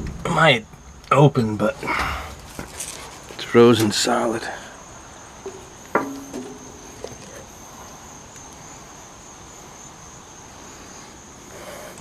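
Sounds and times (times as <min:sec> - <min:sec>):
insects trilling: 0:00.0 - 0:12.0
faint knocks: 0:05.4 - 0:07.5.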